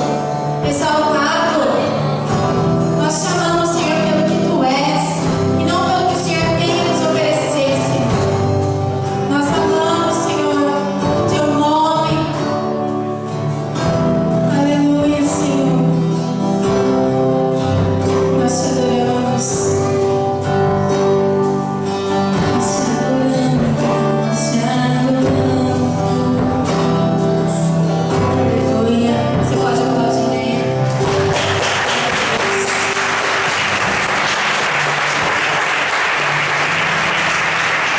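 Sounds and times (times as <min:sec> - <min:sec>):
band accompaniment: 0:16.1 - 0:24.2, 0:29.3 - 0:37.9
applause: 0:30.8 - 0:37.9.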